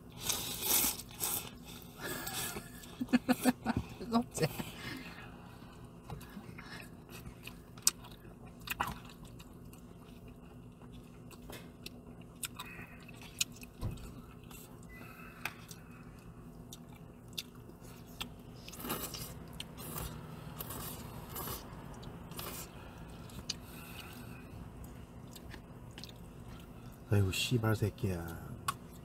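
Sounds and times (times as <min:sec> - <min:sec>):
person chewing noodles: 0:00.0 - 0:03.6, 0:05.0 - 0:27.1.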